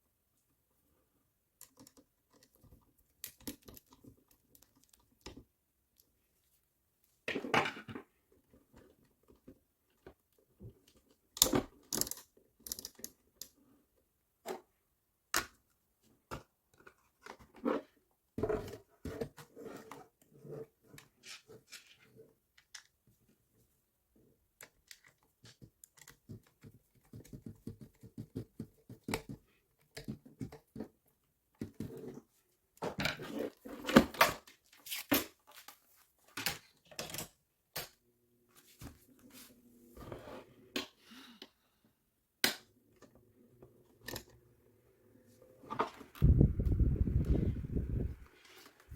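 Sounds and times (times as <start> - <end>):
plastic parts clicking and rustling: 1.6 - 6.1, 8.7 - 13.6, 20.9 - 23.2, 24.5 - 38.0.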